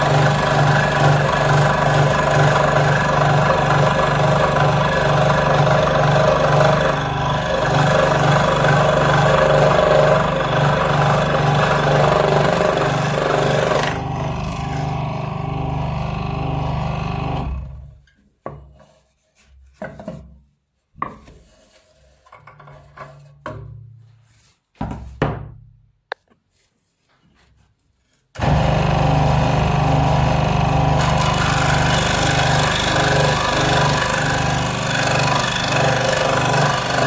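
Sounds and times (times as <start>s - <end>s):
power tool motor humming: 0.0s - 17.8s, 28.4s - 37.0s.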